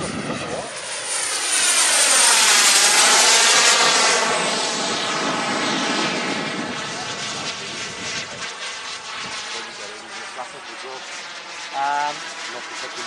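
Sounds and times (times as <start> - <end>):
model jet turbine flying past: 0.0 - 13.0.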